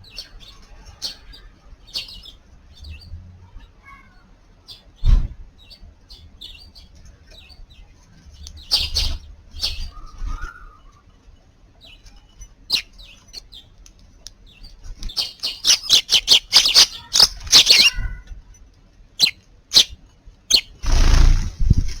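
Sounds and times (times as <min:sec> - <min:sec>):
sparrows chirping: 0:00.0 - 0:03.2, 0:04.6 - 0:10.2, 0:11.8 - 0:18.1, 0:19.1 - 0:21.5
rustling noise: 0:20.8 - 0:22.0.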